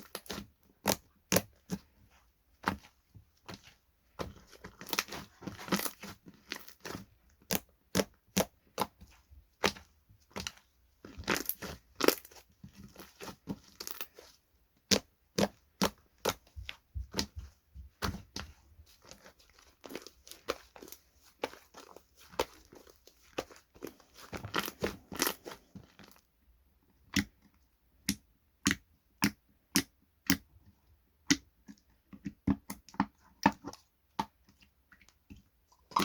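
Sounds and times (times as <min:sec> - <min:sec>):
slime crackling and popping: 0:04.2 - 0:09.0, 0:09.6 - 0:16.5, 0:18.0 - 0:26.2.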